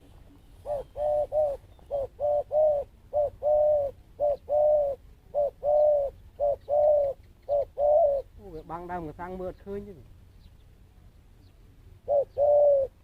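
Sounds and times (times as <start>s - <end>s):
dove cooing: 0.0s - 9.0s, 12.0s - 13.0s.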